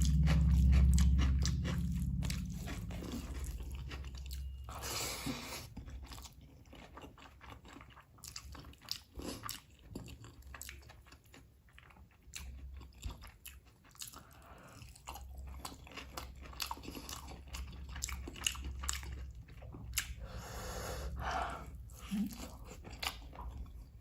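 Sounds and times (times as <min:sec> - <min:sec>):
low hum: 0:00.0 - 0:06.7
close chewing and mouth smacks: 0:00.0 - 0:20.4, 0:21.1 - 0:24.0.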